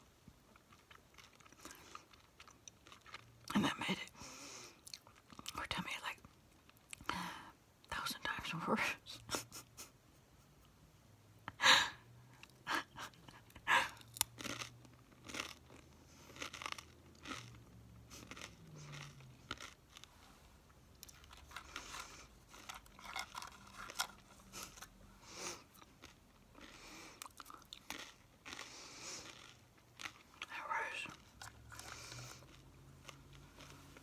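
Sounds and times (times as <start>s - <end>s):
chewing crunchy food: 0.5s - 3.6s, 4.7s - 5.6s, 12.4s - 34.0s.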